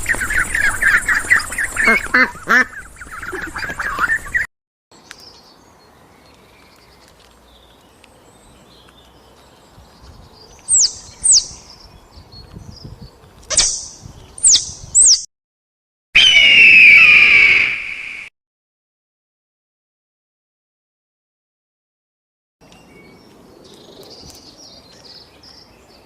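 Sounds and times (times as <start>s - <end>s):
high animal chirps: 10.7s - 11.6s, 13.5s - 15.3s, 16.2s - 18.3s.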